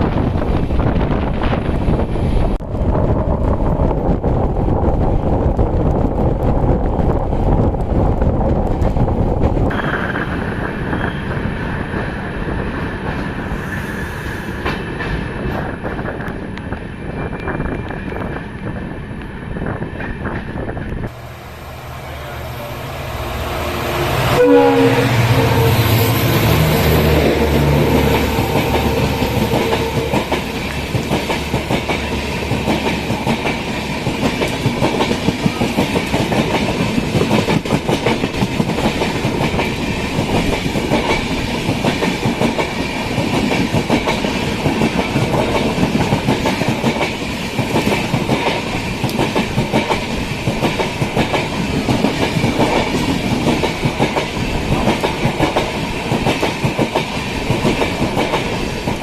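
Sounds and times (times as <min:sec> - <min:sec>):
train wheels clacking on rails: 0:23.3 - 0:59.0.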